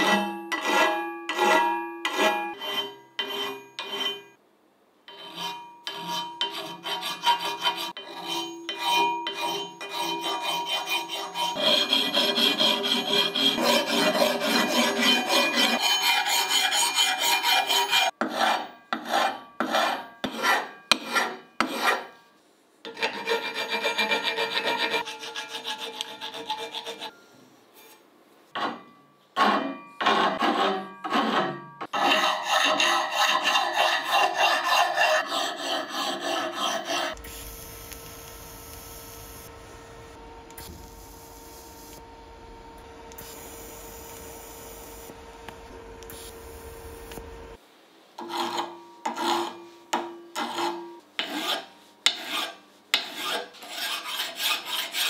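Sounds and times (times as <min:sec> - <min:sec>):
rasping scraping on hard surface: 0:05.1 - 0:22.2, 0:22.9 - 0:27.2, 0:29.4 - 0:37.2, 0:50.4 - 0:55.0.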